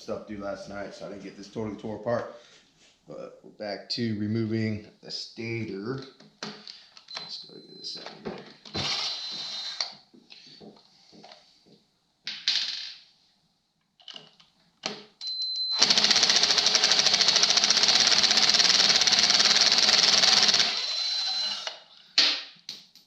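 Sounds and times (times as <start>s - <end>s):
impact wrench whining and hammering: 8.7s - 10.0s, 14.8s - 22.5s
tool handling clicks and knocks: 14.0s - 15.1s.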